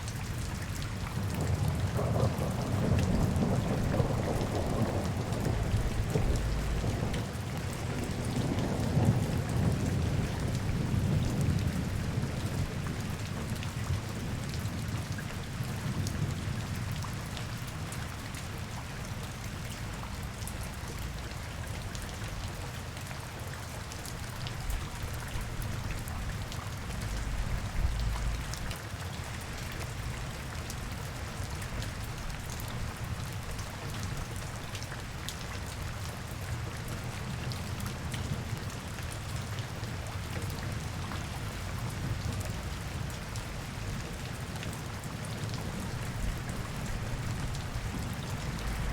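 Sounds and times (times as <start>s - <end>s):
rain pattering: 0.0s - 48.9s
low rumble: 5.5s - 6.9s, 26.9s - 28.7s.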